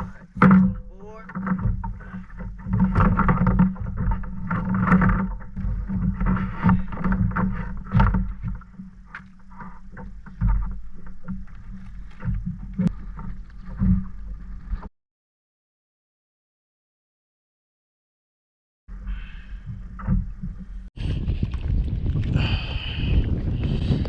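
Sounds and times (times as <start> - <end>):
wind rumble on microphone: 18.9 - 24.0.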